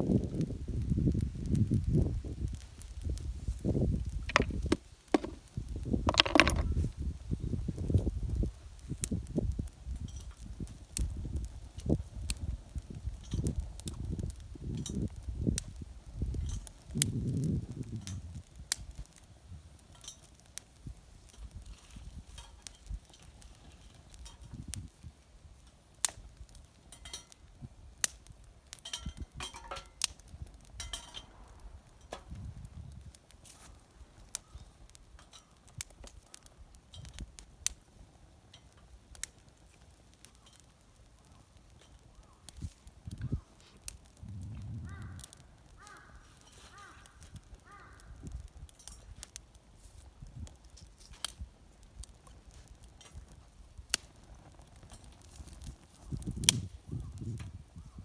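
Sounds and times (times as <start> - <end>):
wind rumble on microphone: 0.0 - 19.7, 24.2 - 25.2, 30.3 - 33.2, 42.6 - 46.0, 47.0 - 48.7, 53.2 - 58.0
sharp pops from fire: 0.0 - 58.0
wood fire crackling: 0.0 - 58.0.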